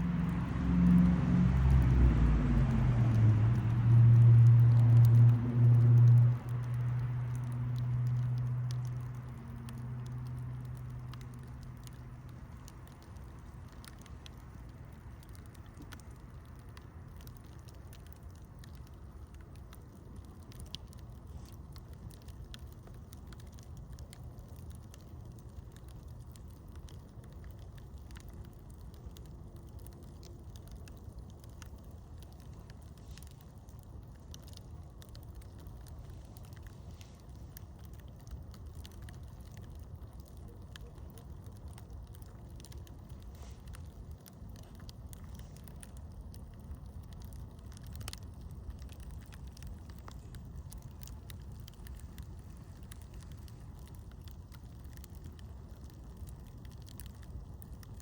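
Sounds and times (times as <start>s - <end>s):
low hum: 0.0s - 17.5s
campfire crackling: 0.0s - 58.0s.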